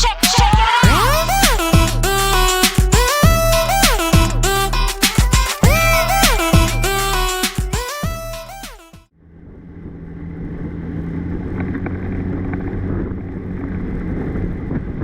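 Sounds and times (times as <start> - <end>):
music: 0.0 - 9.1
vehicle engine running: 8.1 - 15.0
wind and road rumble: 9.2 - 15.0.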